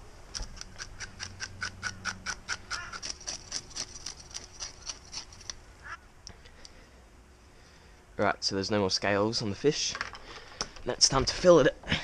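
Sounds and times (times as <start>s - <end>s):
knife scraping fish scales: 0.4s - 5.6s.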